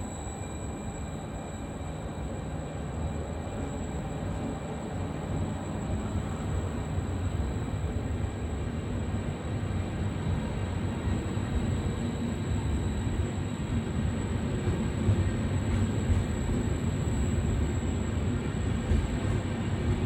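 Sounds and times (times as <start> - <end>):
thin high whine: 0.0 - 8.2
train rumbling on rails: 0.0 - 20.0.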